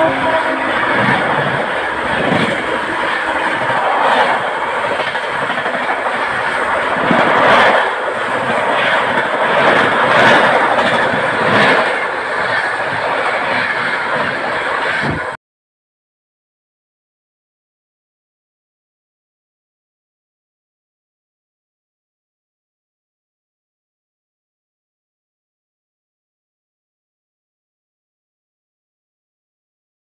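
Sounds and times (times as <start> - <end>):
train wheels clattering over rails: 0.0 - 15.4.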